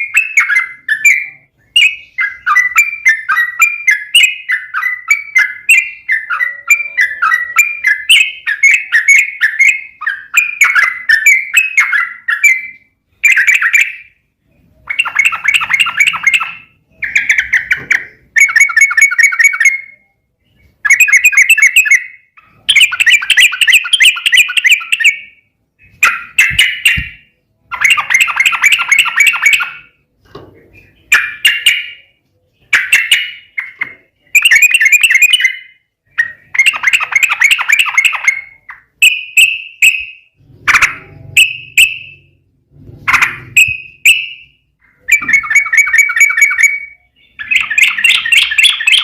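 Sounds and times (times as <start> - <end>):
bulbul chattering song: 0.0 - 49.0.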